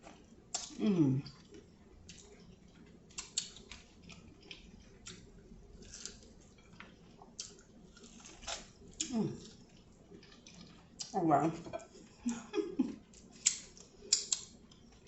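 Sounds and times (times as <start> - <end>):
crunchy food chewing: 0.0 - 11.2.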